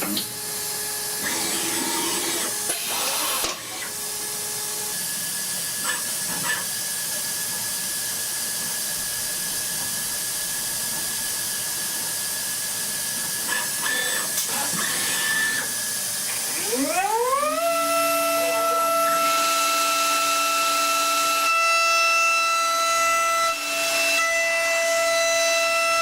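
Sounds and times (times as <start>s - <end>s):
metal lathe running: 0.0s - 4.2s.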